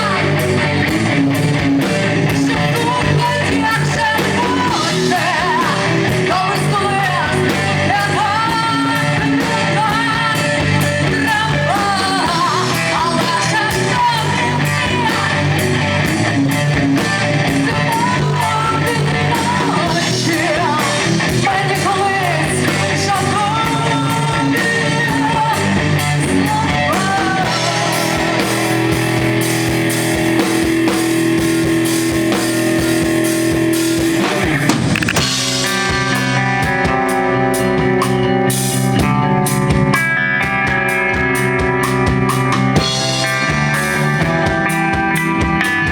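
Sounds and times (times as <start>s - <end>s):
rock band playing: 0.0s - 45.9s
person singing: 2.3s - 15.6s, 17.6s - 28.9s.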